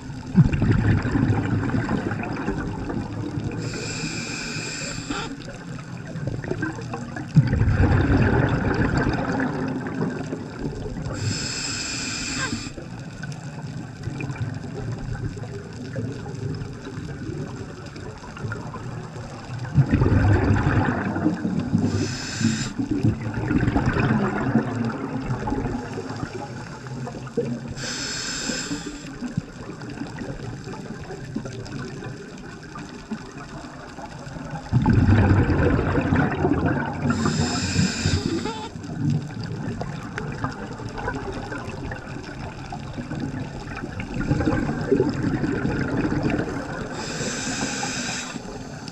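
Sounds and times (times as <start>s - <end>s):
bubbling exhaled air: 0.0s - 13.1s, 14.0s - 48.9s
low wash of water: 0.0s - 48.9s
regulator inhalation hiss: 3.5s - 5.5s, 11.1s - 12.8s, 21.8s - 23.0s, 27.8s - 29.3s, 37.1s - 38.8s, 46.9s - 48.9s.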